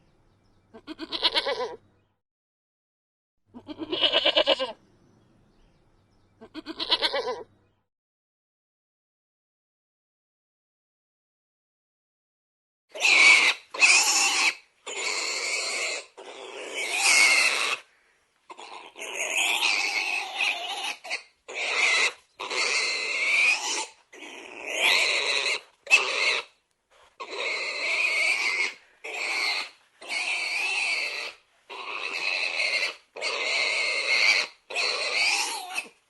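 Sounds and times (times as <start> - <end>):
animal squealing: 13.0 - 17.8, 18.5 - 26.5, 27.2 - 36.0.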